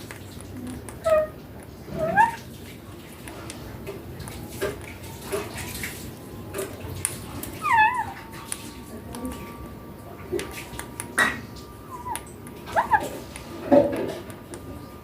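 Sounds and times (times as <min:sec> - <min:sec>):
parakeet warbling call: 0:01.0 - 0:02.4, 0:07.5 - 0:08.3, 0:11.8 - 0:13.2
soft bird chirps and clicks: 0:11.9 - 0:13.5.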